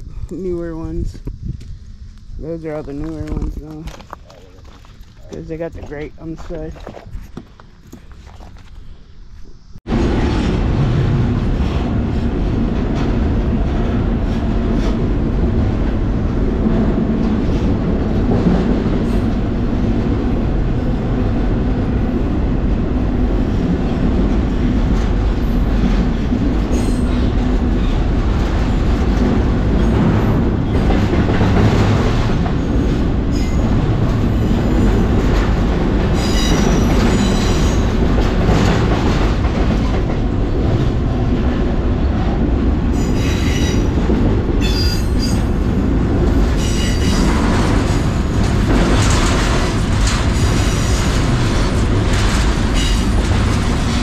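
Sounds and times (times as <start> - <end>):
train wheels rumbling and rattling: 0.0 - 54.0
high-pitched wheel squeal: 44.6 - 45.5.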